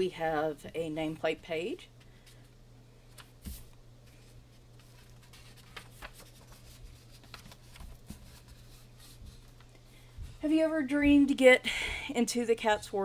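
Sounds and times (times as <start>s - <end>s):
low steady hum: 0.0s - 13.0s
coloring book pages turning: 3.1s - 9.7s.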